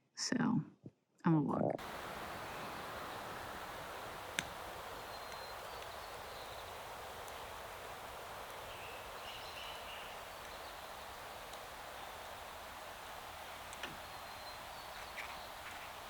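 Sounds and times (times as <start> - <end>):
background noise hiss: 1.6 - 16.0
faint high chirps: 1.8 - 16.0.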